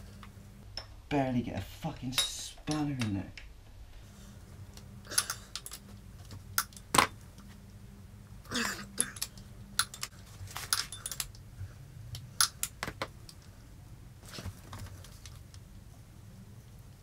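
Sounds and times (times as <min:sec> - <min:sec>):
spanner clinking on metal: 0:10.7 - 0:11.4.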